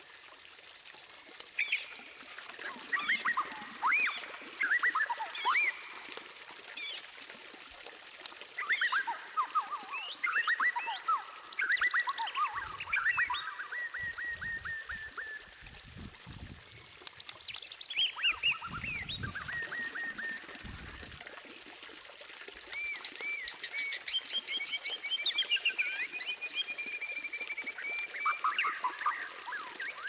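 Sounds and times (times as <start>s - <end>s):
songbird singing: 8.6s - 15.4s, 17.1s - 20.8s.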